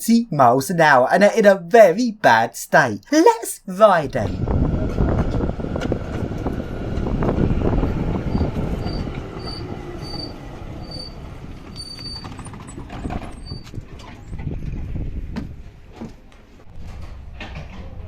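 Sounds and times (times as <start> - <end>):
tram rumbling on rails: 4.4 - 13.3
high-pitched wheel squeals: 8.3 - 13.7.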